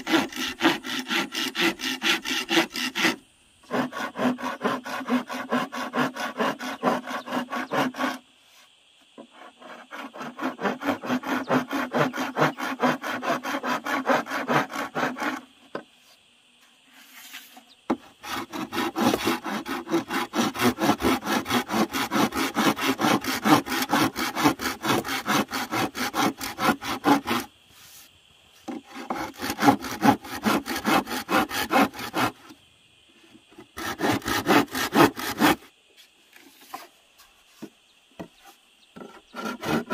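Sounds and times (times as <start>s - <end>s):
hand saw cutting wood: 0.0s - 8.2s, 9.2s - 15.5s, 17.3s - 27.5s, 28.7s - 32.6s, 33.7s - 35.7s, 39.0s - 39.9s.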